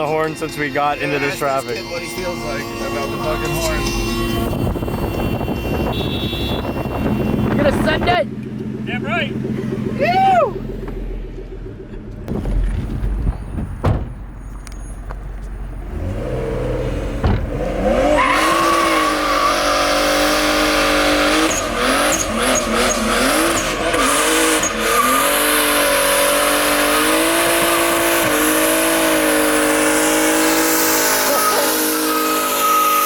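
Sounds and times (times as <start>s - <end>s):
loud tire squeal: 0.0s - 8.1s, 17.5s - 33.0s
car engine revving: 0.0s - 14.4s, 15.1s - 33.0s.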